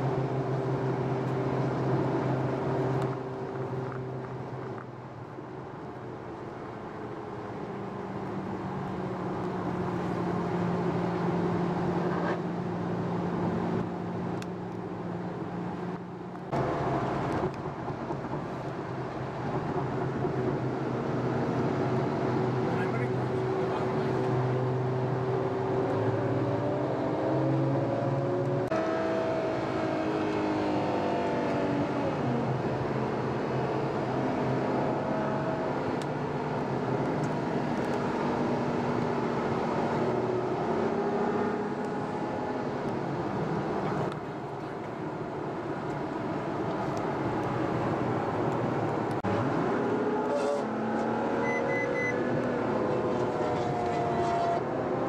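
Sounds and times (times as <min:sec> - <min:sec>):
car engine while driving: 0:00.0 - 0:55.0.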